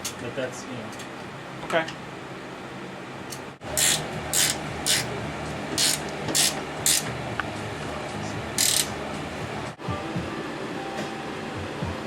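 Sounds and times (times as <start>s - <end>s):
ratchet wrench rasping: 3.8s - 5.1s, 5.8s - 7.2s, 8.6s - 8.9s.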